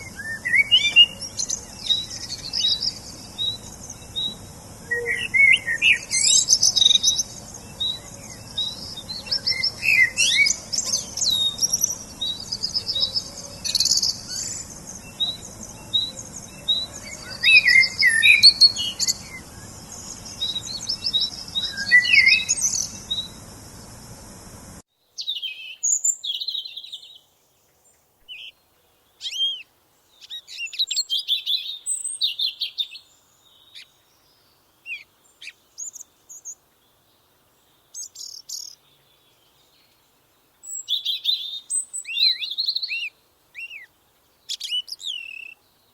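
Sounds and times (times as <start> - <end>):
birds chirping and trilling: 0.0 - 27.2
background hiss: 0.0 - 45.9.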